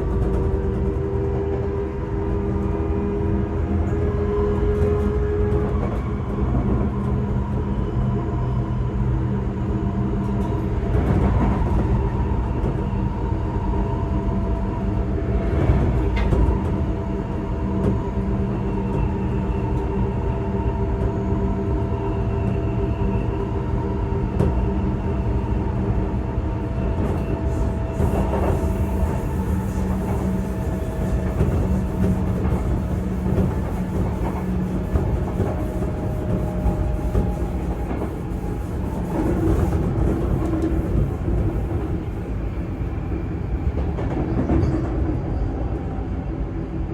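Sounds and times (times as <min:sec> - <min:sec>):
train running rumble: 0:00.0 - 0:46.9.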